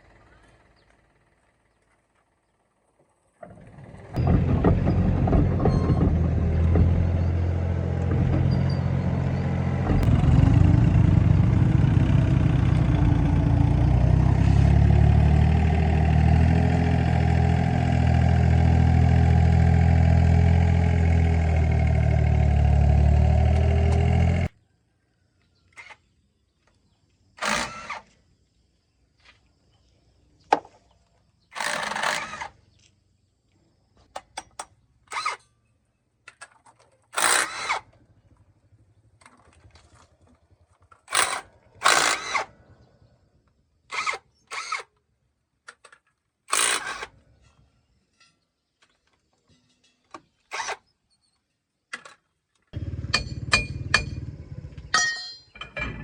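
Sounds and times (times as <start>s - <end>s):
power tool bursts: 27.4s - 28.0s, 31.5s - 32.5s, 37.2s - 37.8s, 41.1s - 42.5s, 43.9s - 44.9s, 46.5s - 47.1s
metallic clinks: 54.9s - 56.0s.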